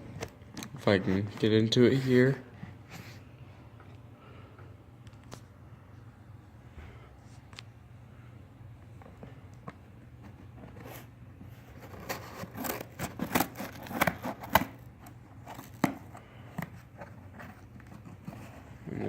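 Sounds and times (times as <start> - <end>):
tape and cardboard tearing: 11.8 - 16.1.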